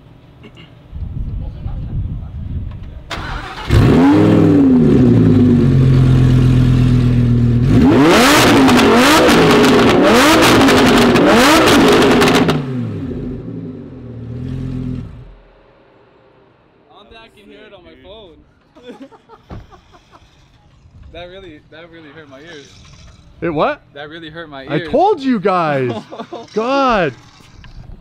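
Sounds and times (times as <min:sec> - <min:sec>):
sports car engine revving: 0:03.4 - 0:16.0
sports car engine idling: 0:03.7 - 0:07.8, 0:08.8 - 0:17.2.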